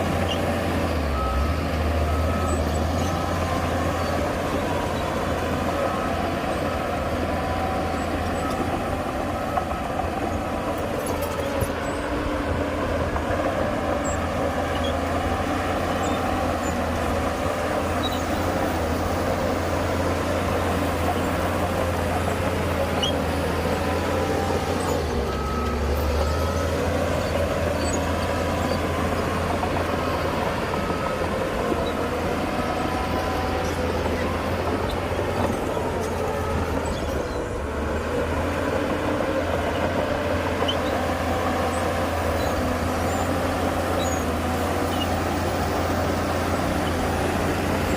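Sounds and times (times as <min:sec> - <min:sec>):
reversing alarm beeps: 0:00.0 - 0:37.7
heavy diesel machinery engine drone: 0:00.0 - 0:47.9.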